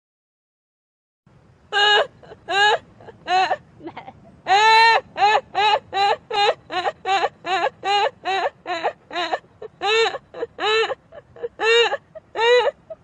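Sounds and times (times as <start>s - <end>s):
woman laughing in high whoops: 1.8s - 13.0s.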